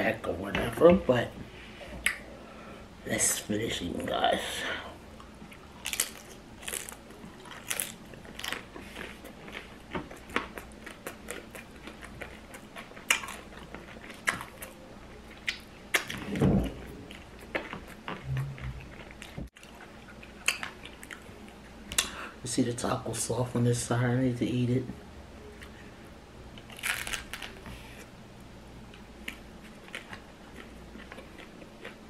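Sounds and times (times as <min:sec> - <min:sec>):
chewing crunchy taco shell: 0:05.2 - 0:22.2, 0:26.6 - 0:28.1, 0:28.9 - 0:32.0.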